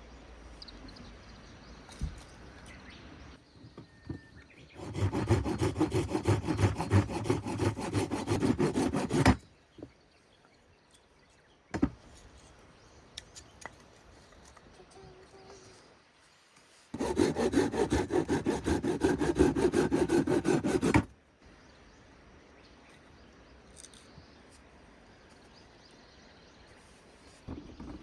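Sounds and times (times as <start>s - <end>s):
saw cutting through wood: 4.7s - 9.4s, 17.0s - 21.1s.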